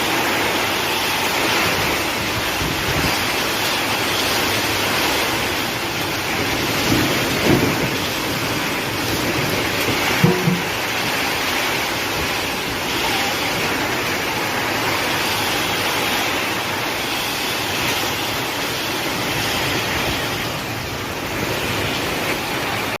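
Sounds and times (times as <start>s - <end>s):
heavy rain pouring: 0.0s - 23.0s
wind: 0.0s - 23.0s
short knock: 10.2s - 10.8s.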